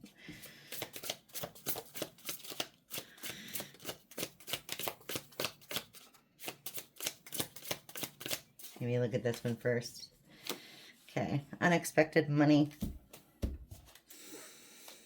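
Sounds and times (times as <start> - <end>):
cards being shuffled by hand: 0.4 - 9.6.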